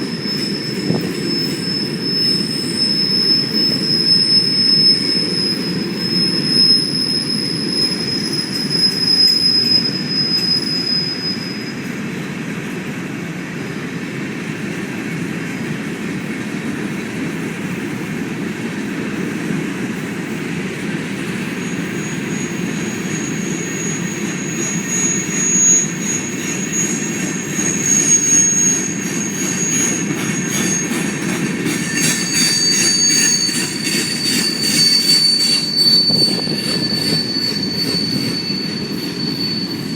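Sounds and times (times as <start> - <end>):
wheel squeal: 0.0 - 12.3, 21.0 - 39.9
freight train cars rumbling: 0.0 - 39.9.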